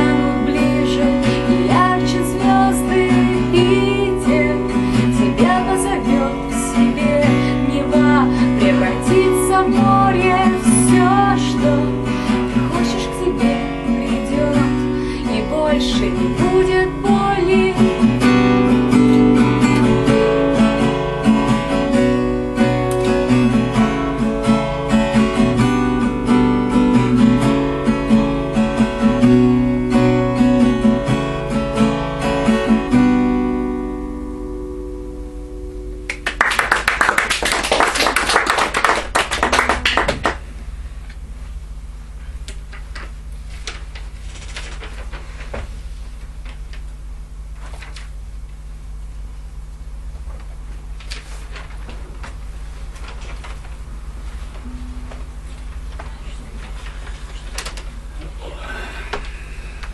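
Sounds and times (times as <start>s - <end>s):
strummed acoustic guitar music: 0.0s - 36.3s, 54.3s - 58.0s.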